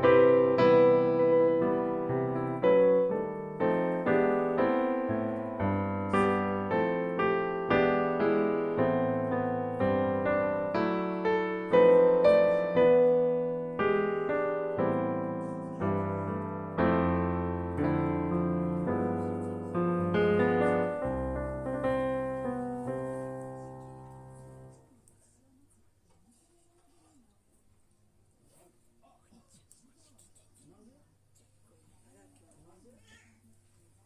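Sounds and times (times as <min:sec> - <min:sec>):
gentle piano melody: 0:00.0 - 0:24.8.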